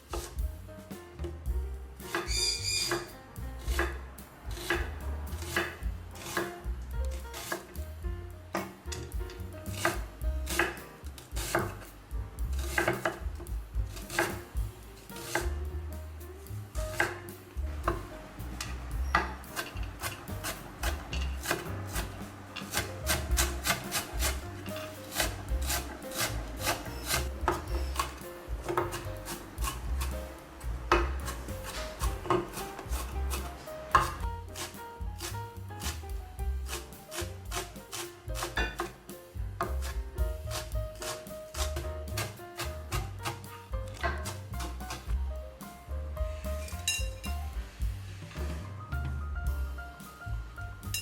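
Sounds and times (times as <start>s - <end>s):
knife chopping on cutting board: 0.1s - 0.4s, 2.0s - 7.8s, 8.5s - 11.9s, 12.5s - 15.6s, 16.8s - 39.0s, 39.6s - 45.2s.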